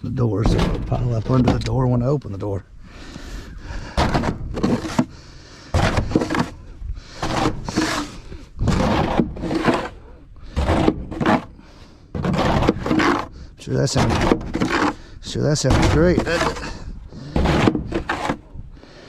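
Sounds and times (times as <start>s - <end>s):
snow shovel scraping snow: 3.8s - 5.2s, 5.8s - 18.5s.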